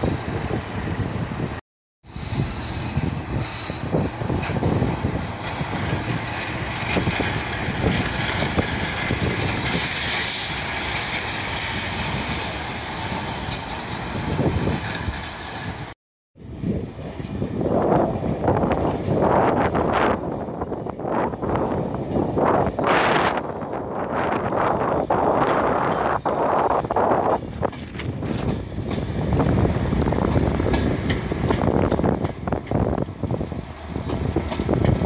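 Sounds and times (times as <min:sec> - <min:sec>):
high wheel squeal: 0:02.1 - 0:05.9, 0:09.7 - 0:13.8
wheels clattering over rail joints: 0:27.2 - 0:33.1.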